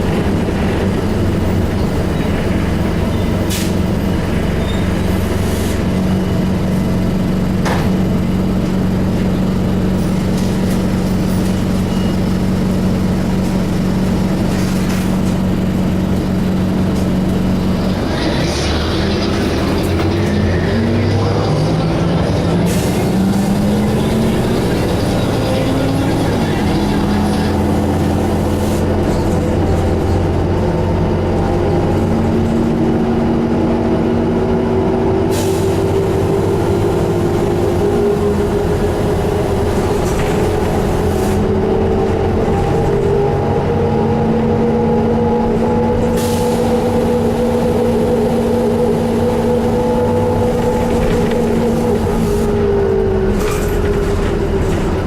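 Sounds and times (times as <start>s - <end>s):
bus diesel engine running: 0.0s - 55.0s
transmission whine rising: 41.4s - 55.0s.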